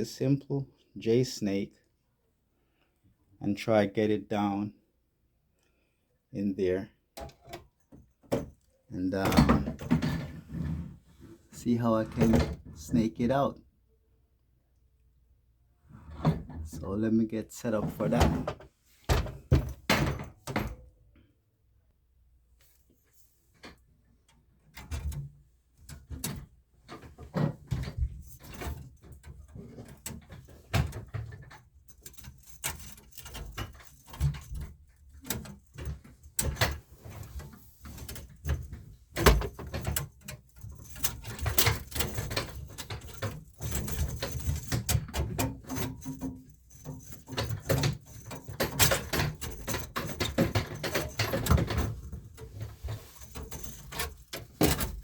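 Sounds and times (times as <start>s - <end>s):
tools knocking and clunking: 7.2s - 10.5s, 17.7s - 20.9s, 23.6s - 55.0s.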